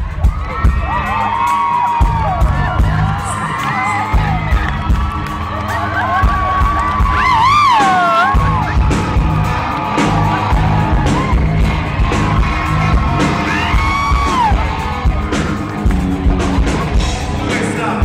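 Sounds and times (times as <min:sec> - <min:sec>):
concert crowd whooping: 0:00.0 - 0:18.0
live rock band playing: 0:00.0 - 0:18.0
bending high pitched guitar lines: 0:06.8 - 0:17.4.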